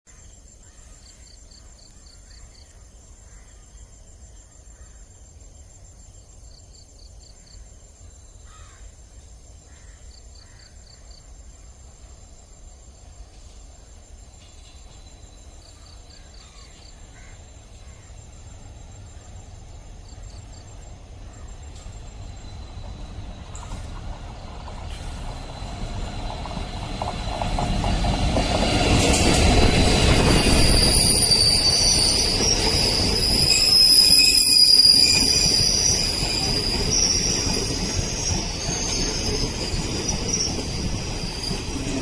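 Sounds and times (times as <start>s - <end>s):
high insect trill: 0.1s - 42.0s
crow cawing: 8.5s - 8.8s
diesel train rumble: 17.6s - 42.0s.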